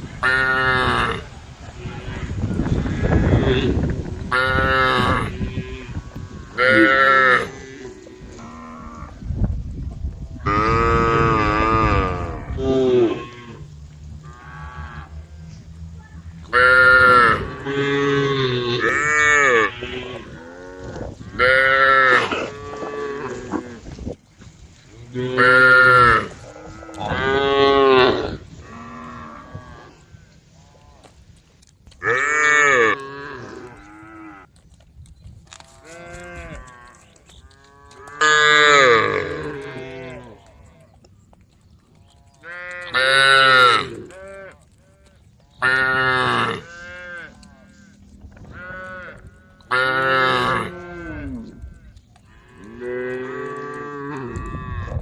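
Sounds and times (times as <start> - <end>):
quiet cattle lowing: 10.3 - 55.0
cattle mooing: 10.5 - 23.8, 35.8 - 40.9, 42.2 - 55.0.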